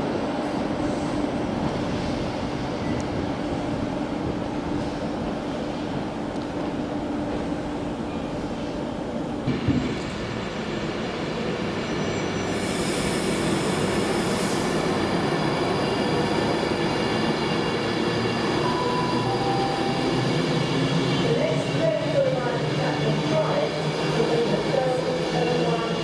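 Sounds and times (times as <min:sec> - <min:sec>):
train running along track: 0:00.0 - 0:26.0
burst of hiss: 0:12.5 - 0:14.8.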